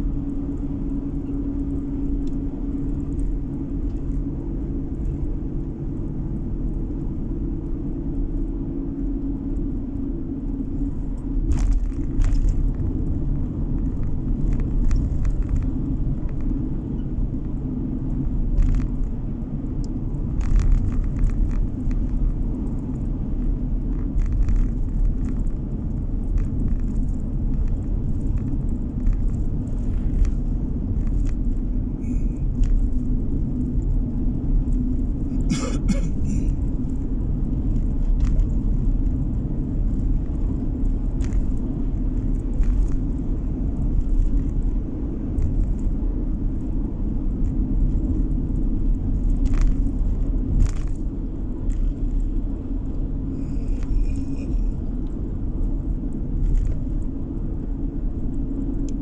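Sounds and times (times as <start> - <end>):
car tyres and engine rumble: 0.0 - 59.0.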